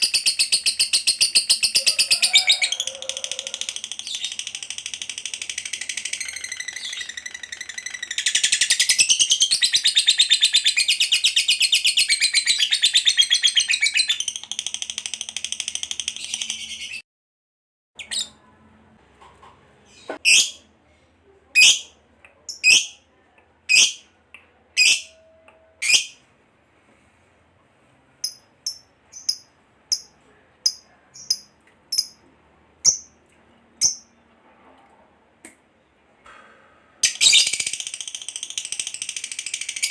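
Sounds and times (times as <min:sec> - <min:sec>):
high bird chirps: 0:03.7 - 0:17.0, 0:28.2 - 0:32.2
lovebird chattering trill: 0:28.2 - 0:30.1.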